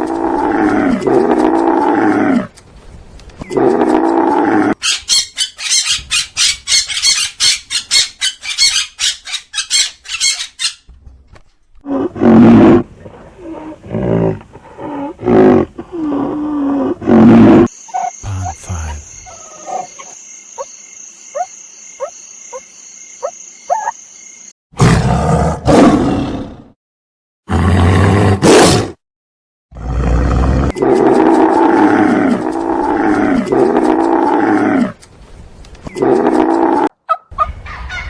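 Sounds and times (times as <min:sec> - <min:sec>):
repeated pitched animal calls: 0:17.6 - 0:20.7, 0:21.3 - 0:24.0.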